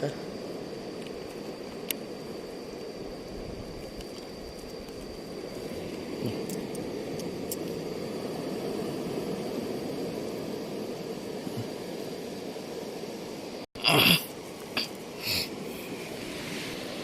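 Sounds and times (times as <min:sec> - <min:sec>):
thin high whine: 0:00.0 - 0:17.0
sea surf breaking: 0:15.0 - 0:17.0.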